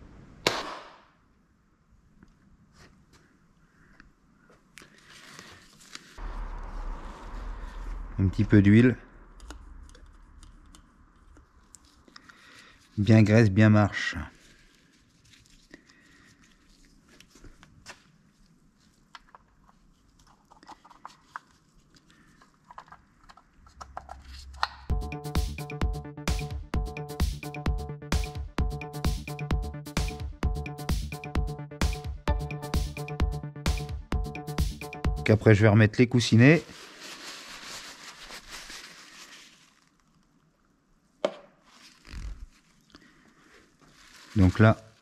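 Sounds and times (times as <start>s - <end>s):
short low bump: 6.2s - 9.9s
handling noise of parts: 18.8s - 24.8s
electronic music with steady beat: 24.8s - 35.4s.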